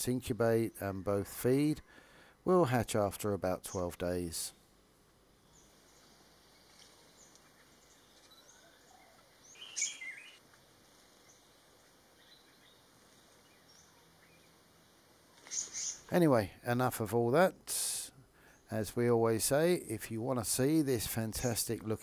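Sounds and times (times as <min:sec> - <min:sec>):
faint forest background: 0:00.0 - 0:22.0
faint bird chirps: 0:05.4 - 0:10.4, 0:11.2 - 0:16.1
bird call: 0:06.8 - 0:10.4, 0:15.4 - 0:16.1.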